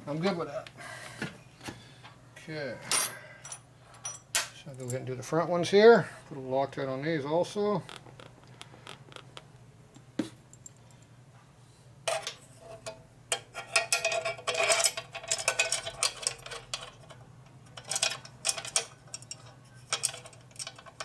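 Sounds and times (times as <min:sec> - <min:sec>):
faint steady hum: 0:00.0 - 0:21.0
metal bolts and tools clinking: 0:12.1 - 0:17.2, 0:17.8 - 0:21.0.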